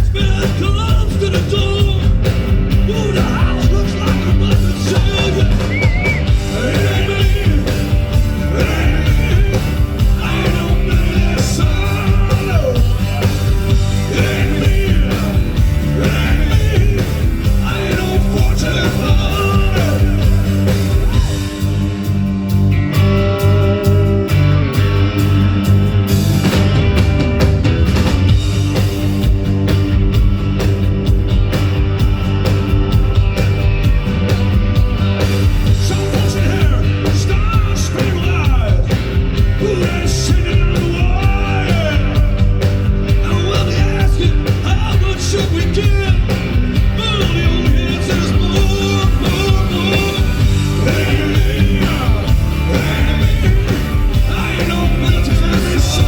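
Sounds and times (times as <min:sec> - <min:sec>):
live rock band playing: 0:00.0 - 0:56.0
steady drum beat: 0:00.0 - 0:56.0
person singing: 0:02.9 - 0:21.5, 0:47.0 - 0:56.0.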